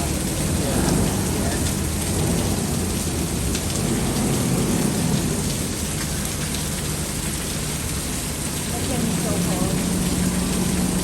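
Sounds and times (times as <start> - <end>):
low rumble: 0.0 - 5.9
heavy rain pouring: 0.0 - 11.0.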